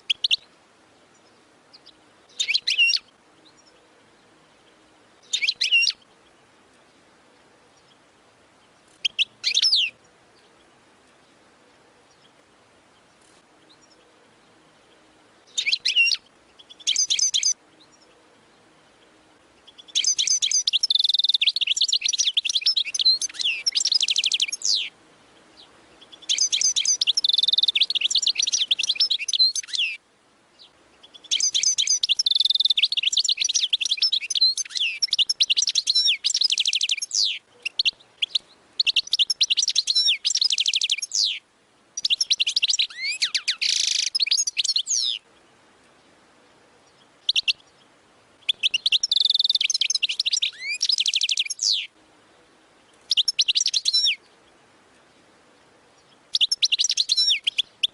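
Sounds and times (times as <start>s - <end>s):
goldfinch twittering and trilling: 1.2s - 3.7s, 5.2s - 6.1s, 8.9s - 10.0s, 15.5s - 18.0s, 19.6s - 24.9s, 25.6s - 30.0s, 30.6s - 41.4s, 42.0s - 45.2s, 46.9s - 47.8s, 48.4s - 51.9s, 53.0s - 54.2s, 56.0s - 57.9s.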